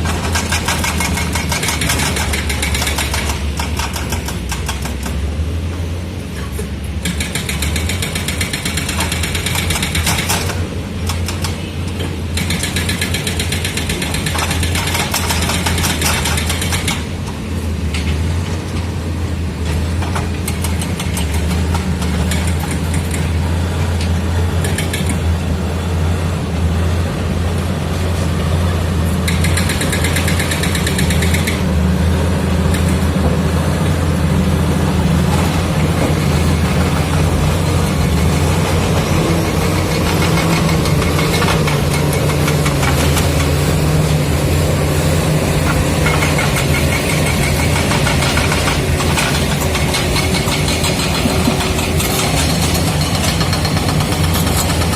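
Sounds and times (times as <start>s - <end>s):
bulldozer diesel engine running: 0.0s - 54.9s
high metallic clatter: 29.2s - 31.7s, 35.4s - 54.9s.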